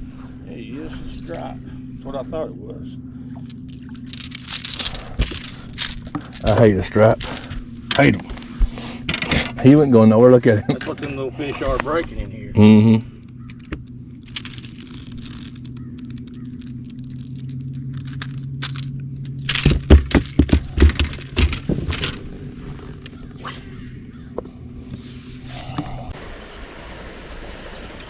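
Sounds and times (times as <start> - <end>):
low hum: 0.0 - 28.0
fishing tackle rattling and clicking: 3.3 - 8.2, 9.0 - 9.7, 10.6 - 11.5, 13.2 - 23.4.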